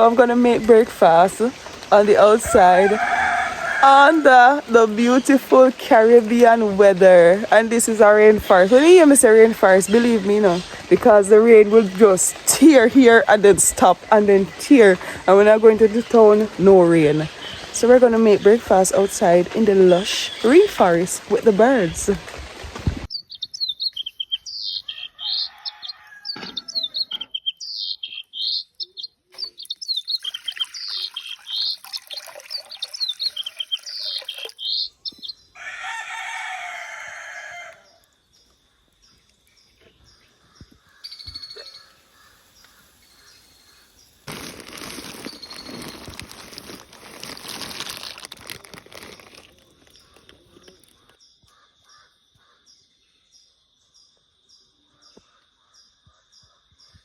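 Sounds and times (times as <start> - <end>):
rooster crowing: 2.4 - 4.5, 24.9 - 27.1, 35.6 - 38.0
parakeets screeching: 23.8 - 35.0.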